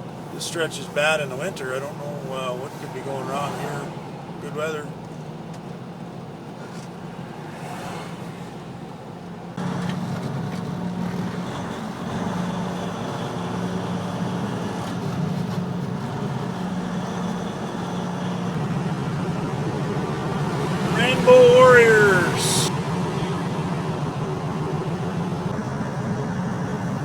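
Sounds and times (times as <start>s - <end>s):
road noise: 0.0s - 27.0s
truck diesel engine drone: 8.6s - 27.0s.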